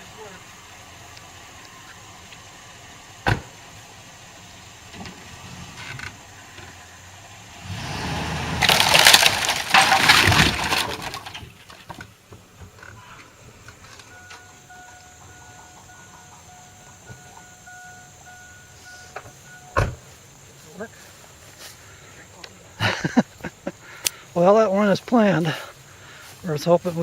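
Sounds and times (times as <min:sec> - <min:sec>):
timber splintering and crashing: 0:07.7 - 0:12.0
wood snapping: 0:08.6 - 0:12.1, 0:24.0 - 0:24.2.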